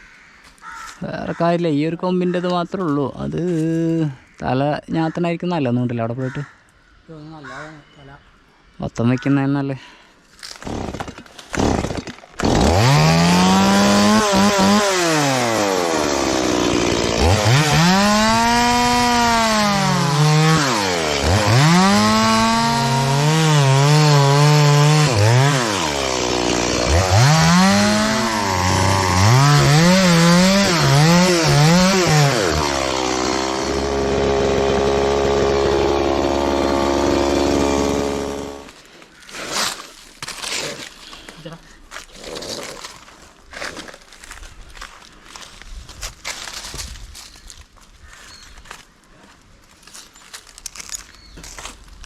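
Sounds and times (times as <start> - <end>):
chainsaw cutting wood: 10.5 - 38.8.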